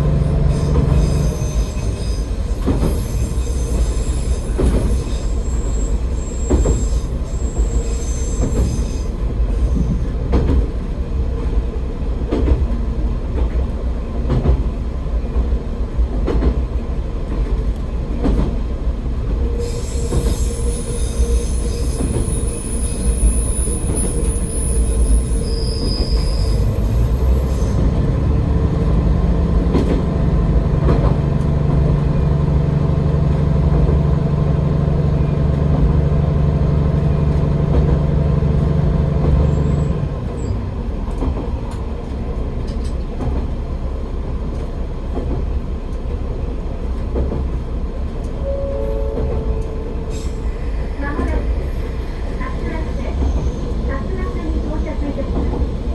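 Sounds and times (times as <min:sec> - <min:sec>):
railcar engine rumble: 0:00.0 - 0:55.9
high wheel squeal: 0:00.2 - 0:09.8, 0:19.5 - 0:28.0, 0:48.4 - 0:55.9.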